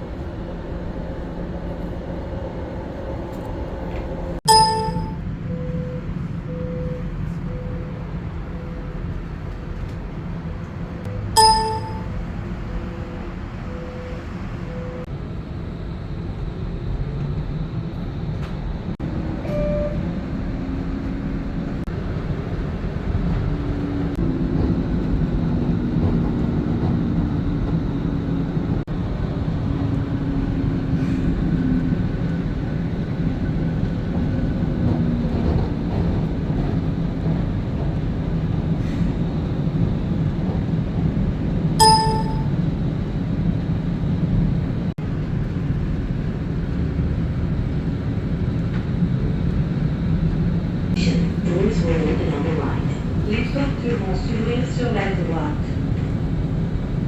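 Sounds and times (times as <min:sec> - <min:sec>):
train drive whine: 0:00.0 - 0:57.0
train rumbling on track: 0:00.0 - 0:57.0
bright chime: 0:04.5 - 0:05.2, 0:11.4 - 0:12.1, 0:41.8 - 0:42.5.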